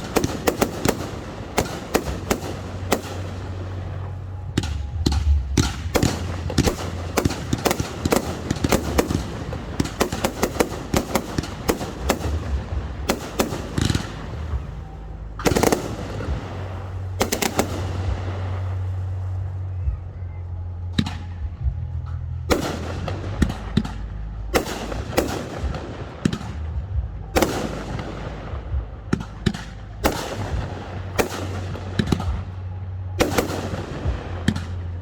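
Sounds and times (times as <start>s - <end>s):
echoing firework booms: 0.0s - 19.0s
firework bangs and crackles: 0.0s - 20.2s, 20.9s - 35.0s.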